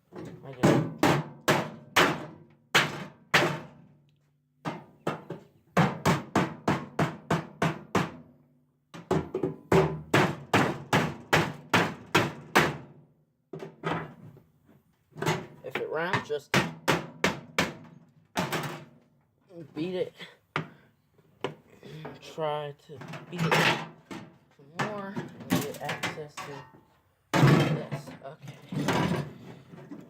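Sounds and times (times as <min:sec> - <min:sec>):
hammer striking chisel on sheet metal: 0:00.6 - 0:03.7.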